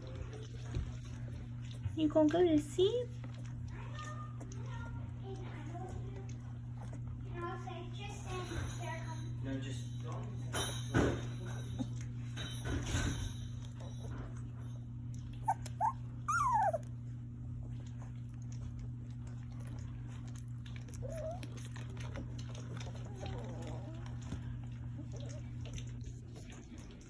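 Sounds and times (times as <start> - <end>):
puppies whimpering: 15.3 - 18.7, 20.5 - 26.2.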